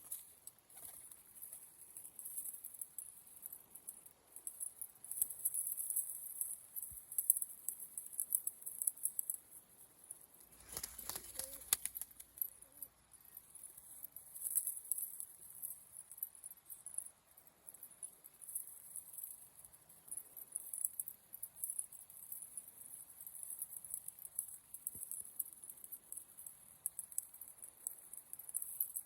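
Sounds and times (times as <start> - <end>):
pigeon wings flapping: 0.7 - 1.2, 10.5 - 12.4.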